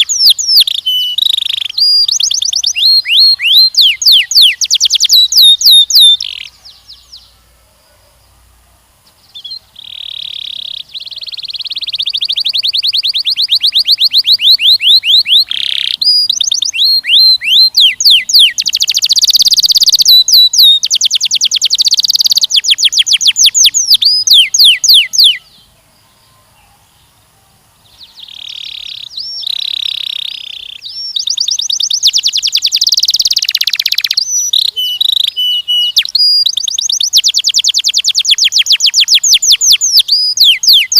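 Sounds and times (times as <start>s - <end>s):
canary singing trills: 0.0s - 8.4s, 9.0s - 40.9s.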